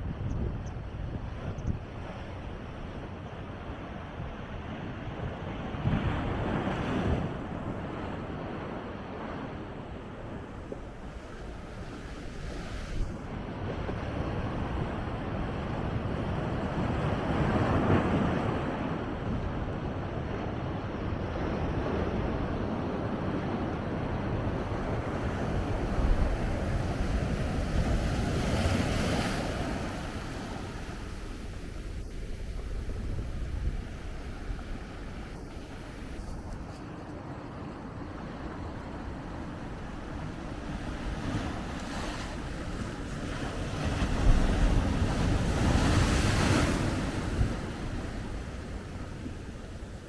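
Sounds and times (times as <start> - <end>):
wind buffeting microphone: 0.0 - 50.0
ocean waves breaking on rocks: 5.2 - 13.2, 24.1 - 50.0.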